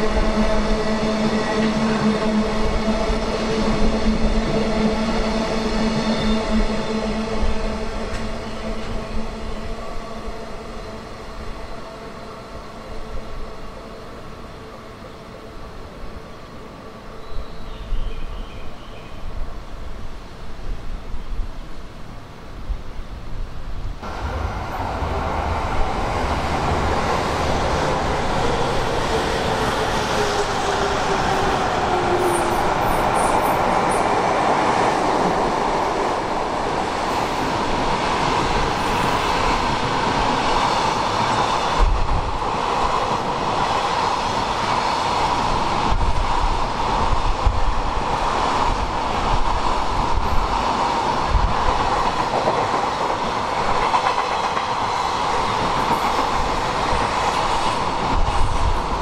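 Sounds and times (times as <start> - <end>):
freight train running past: 0.0 - 59.0.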